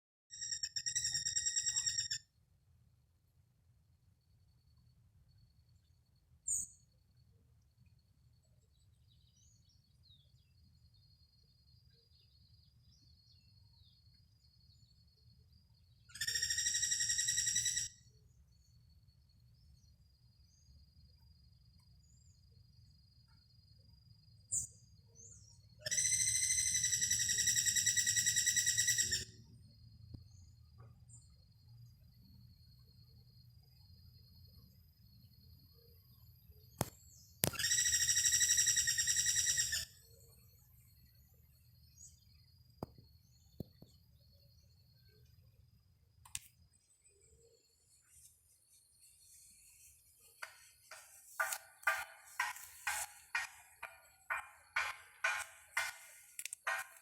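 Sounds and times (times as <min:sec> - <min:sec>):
bird chirping and trilling: 0:00.3 - 0:02.2, 0:16.1 - 0:18.0, 0:24.6 - 0:29.3, 0:37.4 - 0:40.1
sharp high chirp: 0:00.3 - 0:02.2
faint bird chirps: 0:00.3 - 0:02.4, 0:04.1 - 0:57.0
faint high insect drone: 0:00.3 - 0:57.0.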